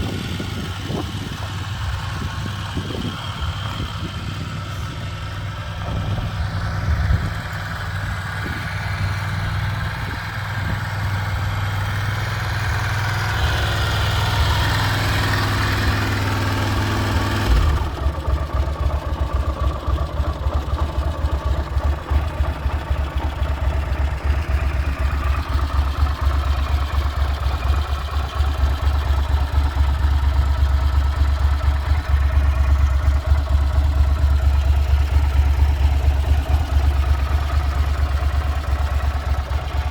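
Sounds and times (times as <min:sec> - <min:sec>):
motorcycle engine idling: 0:00.0 - 0:39.9
deep pulsing exhaust note: 0:02.2 - 0:09.1.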